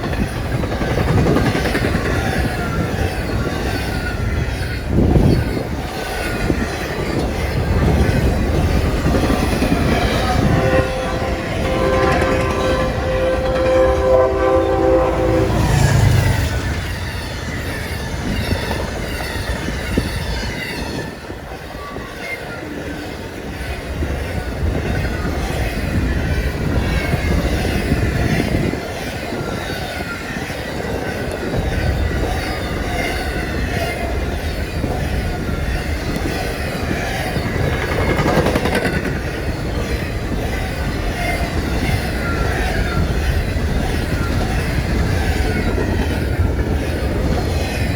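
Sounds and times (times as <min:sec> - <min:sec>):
trains passing with rumble: 0:00.0 - 0:47.9
locomotive horn chord: 0:10.0 - 0:17.2
wheels clattering over rails: 0:35.8 - 0:47.9.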